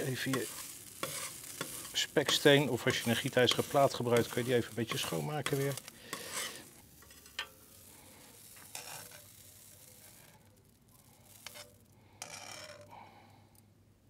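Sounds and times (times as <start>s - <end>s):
patties sizzling in sauce: 0.0s - 11.9s
metal tongs scraping and clicking: 0.2s - 7.7s, 11.4s - 12.9s.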